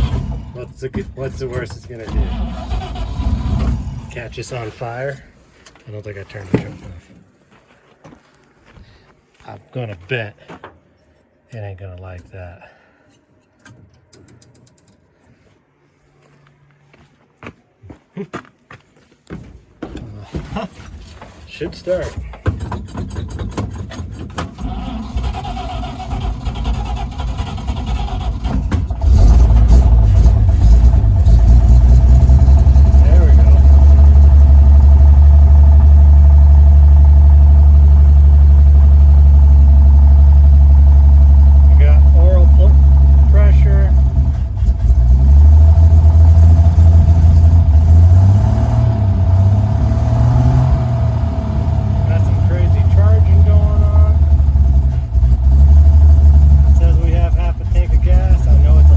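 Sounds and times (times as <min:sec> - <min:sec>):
starter cranking engine: 0:00.0 - 0:04.2, 0:22.5 - 0:48.1
truck engine running: 0:00.0 - 0:05.1, 0:23.3 - 0:58.9.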